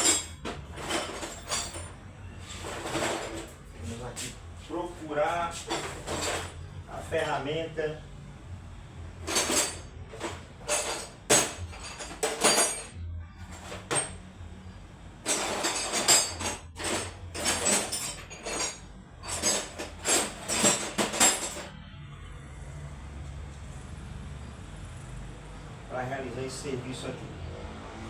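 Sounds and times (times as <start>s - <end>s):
metal hand tools clinking: 0.0s - 1.9s, 9.2s - 14.2s, 15.3s - 21.7s
tools scraping: 0.0s - 7.4s, 9.2s - 14.2s, 15.2s - 21.7s.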